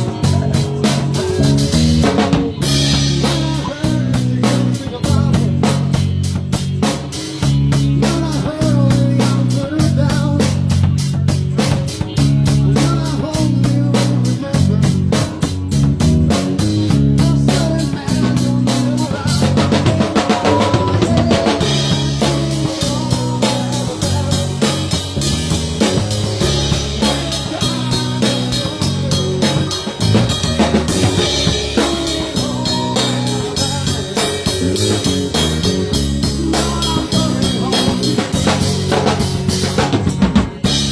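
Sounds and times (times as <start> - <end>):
driving bass line: 0.0 - 40.9
rock band playing: 0.0 - 40.9.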